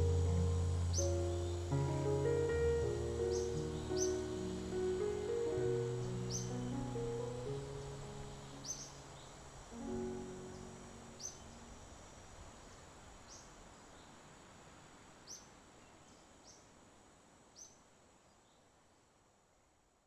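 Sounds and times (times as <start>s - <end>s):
faint high bird chirps: 0.0s - 11.7s
steady hiss: 0.0s - 20.0s.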